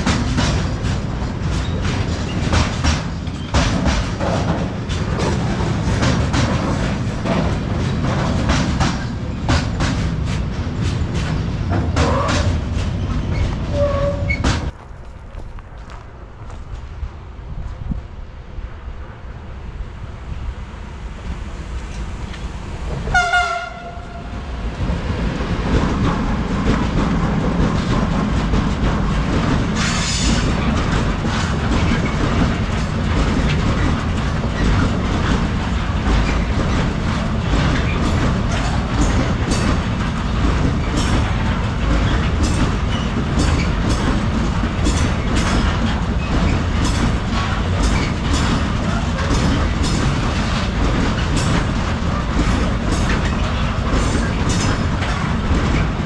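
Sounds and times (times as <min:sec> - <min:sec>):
wheels clacking over rail joints: 0:00.0 - 0:16.9, 0:21.8 - 0:56.0
freight train rumbling past: 0:00.0 - 0:56.0
train horn blast: 0:23.0 - 0:24.4.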